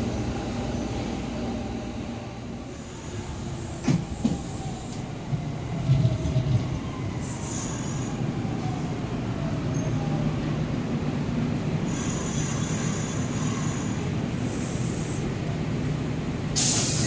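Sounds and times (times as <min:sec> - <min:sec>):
train rumbling with thumps: 0:00.0 - 0:08.8
high brake squeal: 0:11.9 - 0:15.2.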